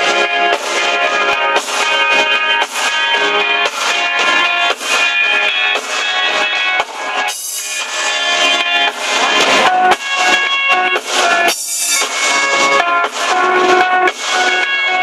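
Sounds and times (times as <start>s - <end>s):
live band music: 0.0s - 15.0s
cymbal crashes: 6.8s - 15.0s.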